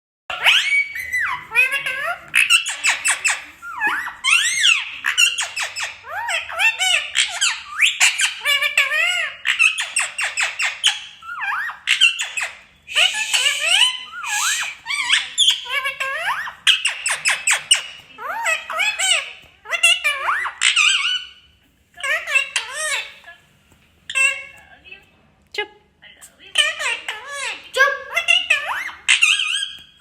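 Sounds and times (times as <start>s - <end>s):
parrot chattering and whistling: 0.3s - 23.4s, 24.1s - 24.6s, 26.5s - 30.0s.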